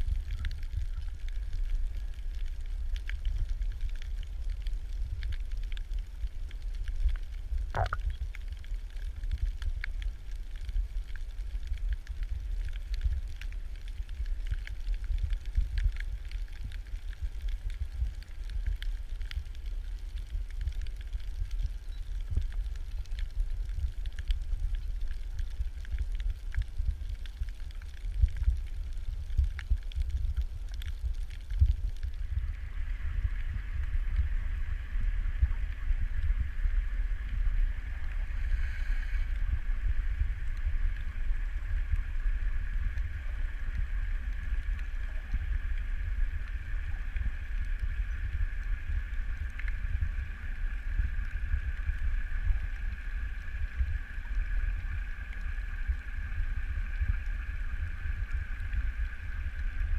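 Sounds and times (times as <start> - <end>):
underwater water rumble: 0.0 - 59.9
steady higher hum: 7.7 - 8.1.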